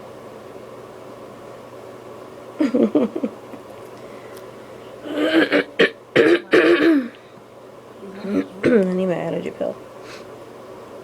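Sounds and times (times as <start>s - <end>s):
person clearing throat: 5.0s - 7.2s
person coughing: 5.0s - 7.2s.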